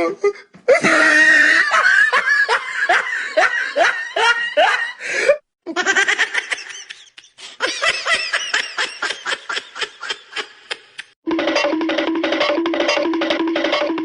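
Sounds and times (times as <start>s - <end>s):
person laughing hard: 0.2s - 5.0s, 5.7s - 11.2s.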